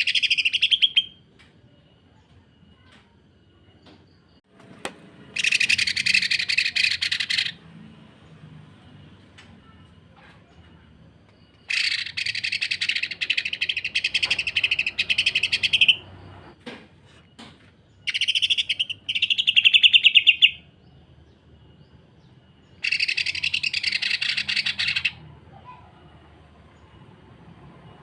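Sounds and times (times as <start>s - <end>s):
bird chattering rattle: 5.4s - 7.6s, 11.6s - 16.0s, 18.0s - 20.5s, 22.8s - 25.2s.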